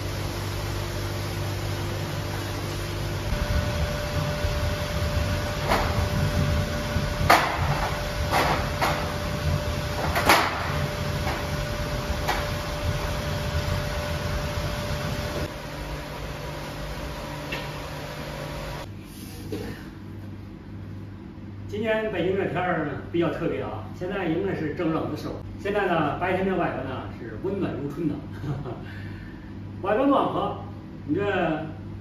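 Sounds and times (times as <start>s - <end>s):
machine hum: 0.0s - 32.0s
sharp knocks: 7.2s - 9.1s, 10.0s - 11.5s.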